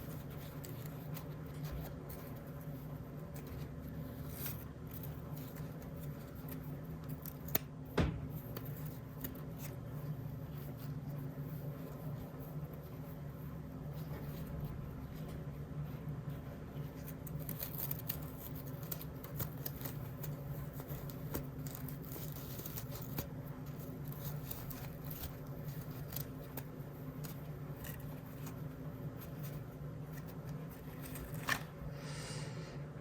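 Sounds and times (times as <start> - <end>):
steady low hum: 0.0 - 33.0
wrapper rustling: 16.9 - 31.8.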